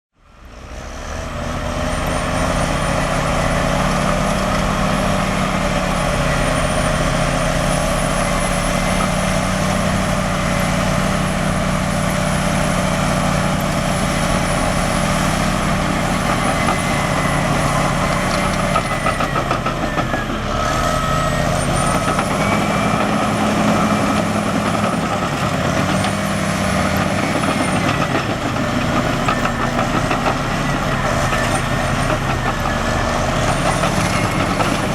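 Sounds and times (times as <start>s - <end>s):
bulldozer diesel engine running: 0.2s - 34.9s.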